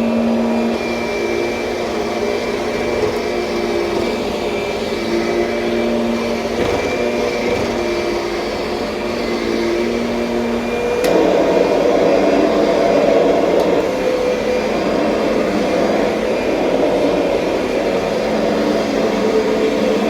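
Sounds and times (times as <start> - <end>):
upright vacuum cleaner running: 0.0 - 20.0.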